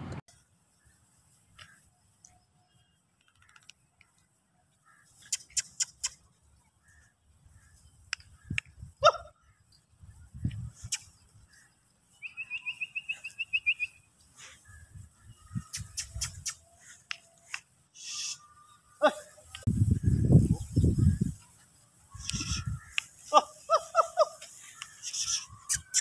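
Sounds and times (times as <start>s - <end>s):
bird high trill: 10.7s - 21.4s, 22.1s - 26.0s.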